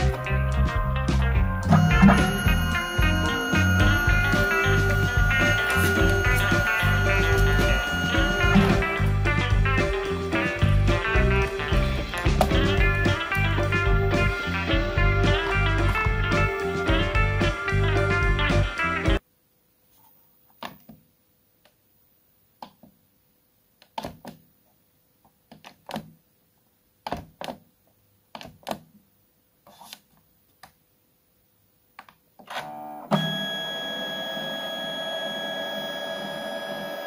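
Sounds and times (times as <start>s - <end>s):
photo printer whirring: 1.7s - 9.0s, 32.5s - 37.0s.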